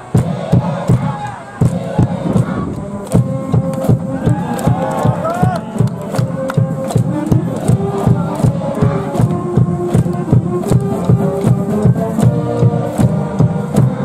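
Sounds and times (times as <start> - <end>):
brass band playing: 0.0 - 14.0
crowd chanting: 0.0 - 14.0
fast drum beat: 0.0 - 14.0.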